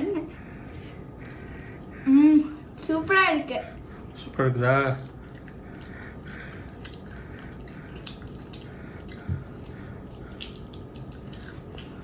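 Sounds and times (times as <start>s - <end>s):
room hum: 0.0s - 12.0s
person chewing crispy food: 0.6s - 2.0s, 4.3s - 12.0s.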